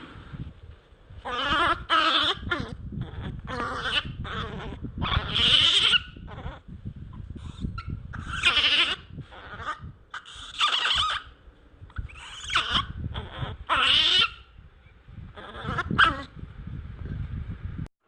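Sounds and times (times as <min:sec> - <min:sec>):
low rumble: 0:00.0 - 0:08.3, 0:11.3 - 0:13.7, 0:14.4 - 0:17.9
baby monkey crying: 0:01.2 - 0:06.6, 0:07.5 - 0:11.3, 0:12.0 - 0:14.5, 0:15.4 - 0:16.3.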